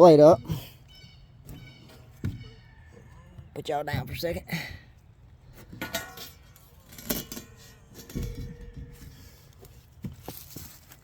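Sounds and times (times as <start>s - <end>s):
faint metallic ringing tone: 5.8s - 9.6s.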